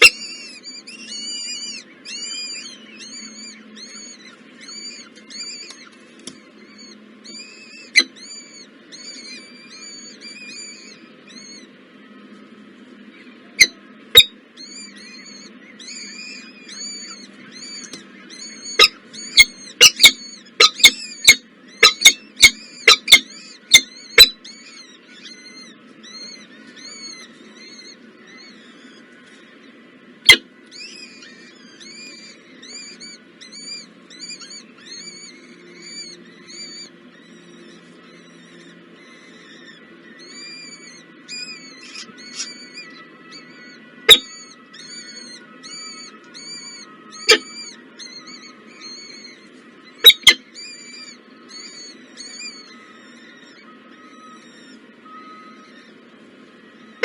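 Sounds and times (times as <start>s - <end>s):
small bird chirping: 0.0s - 57.0s.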